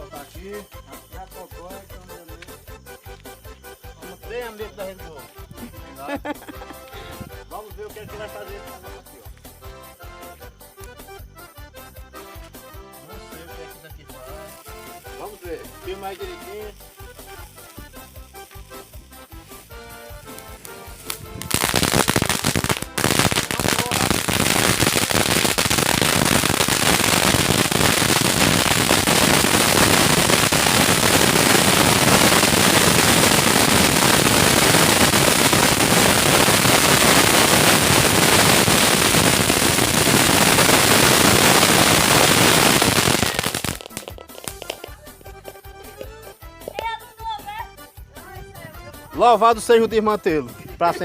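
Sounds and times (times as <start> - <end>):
firework crackling: 13.3 - 46.0.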